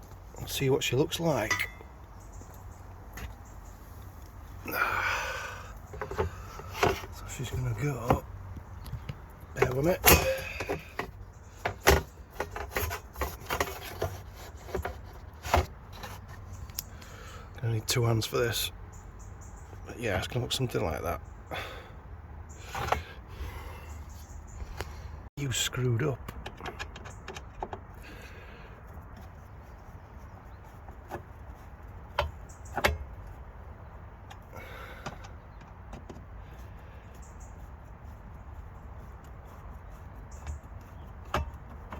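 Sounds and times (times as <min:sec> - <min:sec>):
plastic rubbing and scraping: 0:05.9 - 0:16.6.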